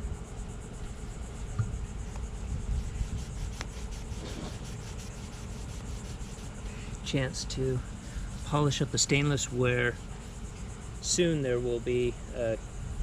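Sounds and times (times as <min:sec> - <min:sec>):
rag scrubbing metal: 0:03.0 - 0:06.6.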